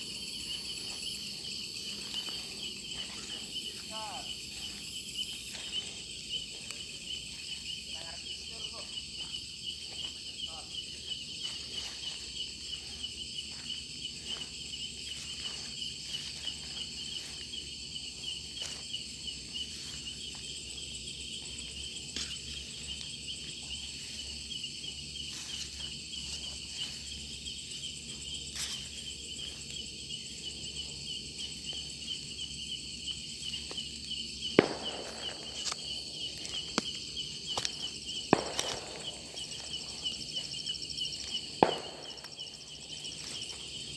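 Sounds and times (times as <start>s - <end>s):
cricket trill: 0.0s - 43.9s
snaps and rustles: 34.5s - 40.5s, 41.2s - 43.9s.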